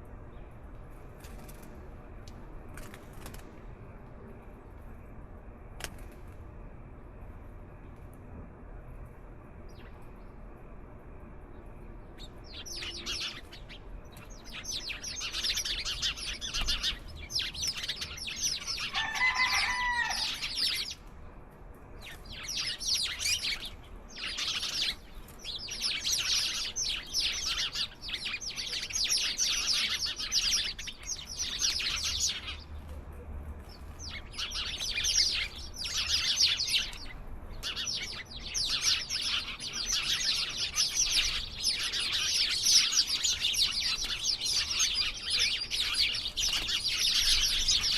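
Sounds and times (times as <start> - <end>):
flock of songbirds chirping: 9.6 - 10.5, 11.4 - 47.9.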